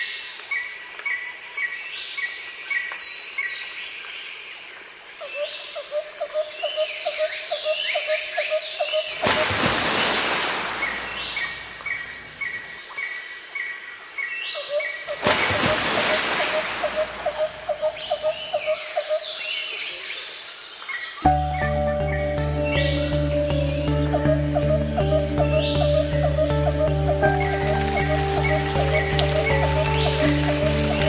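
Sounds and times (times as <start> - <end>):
insect trilling: 14.6 - 19.2, 21.2 - 31.0
birds chirping and whistling: 21.3 - 31.0.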